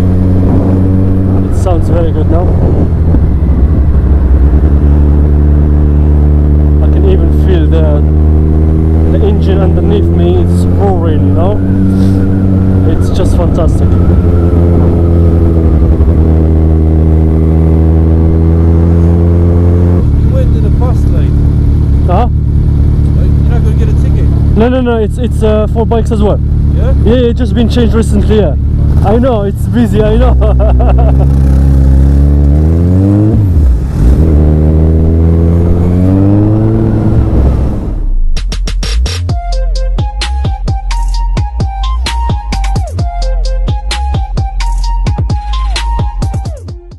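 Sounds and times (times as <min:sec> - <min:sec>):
motorcycle engine running loud: 0:00.0 - 0:38.0
electronic music: 0:38.4 - 0:46.9.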